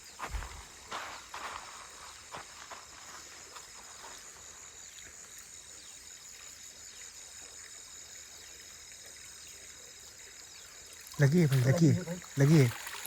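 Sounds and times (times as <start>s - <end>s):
insects ringing tone: 0.0s - 13.0s
insect pulsing trill: 9.4s - 13.0s.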